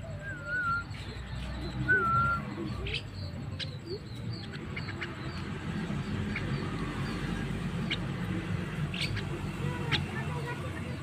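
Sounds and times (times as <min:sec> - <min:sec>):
bird chirps and clicks: 0:06.1 - 0:10.1.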